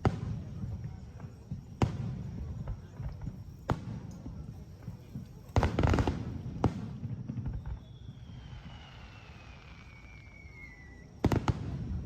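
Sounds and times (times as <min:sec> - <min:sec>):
firework bangs: 0:00.0 - 0:12.0
firework whistle falling: 0:07.5 - 0:11.5.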